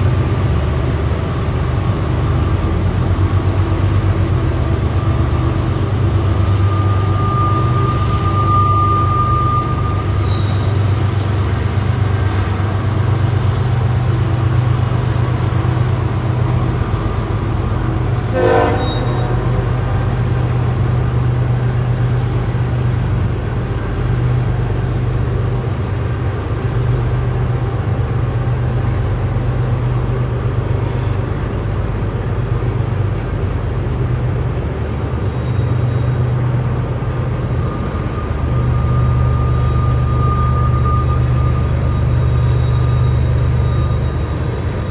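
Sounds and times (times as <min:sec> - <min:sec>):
freight train rumbling by: 0:00.0 - 0:44.9
wheels rushing on rail: 0:00.0 - 0:44.9
brief pitched note: 0:18.2 - 0:20.5.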